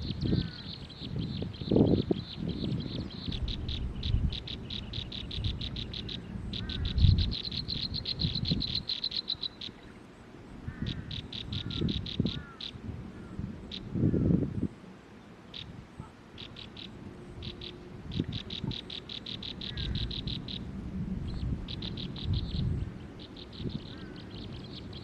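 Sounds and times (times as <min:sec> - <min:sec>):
animal high clicking calls: 0:02.9 - 0:09.9, 0:10.7 - 0:12.8, 0:16.4 - 0:20.6.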